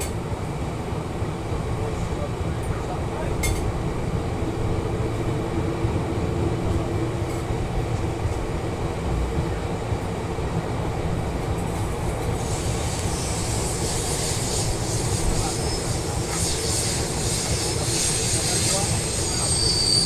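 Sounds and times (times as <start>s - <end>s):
train wheels rumbling on rails: 0.0s - 20.0s
hiss: 11.8s - 20.0s.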